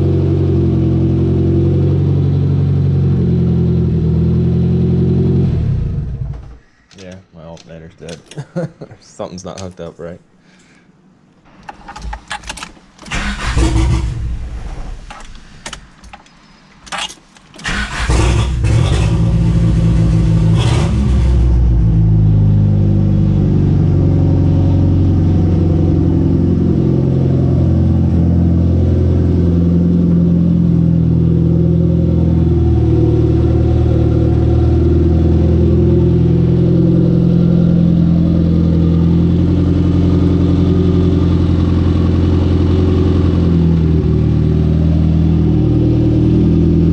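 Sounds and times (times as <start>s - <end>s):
car engine starting and idling: 11.5s - 46.9s.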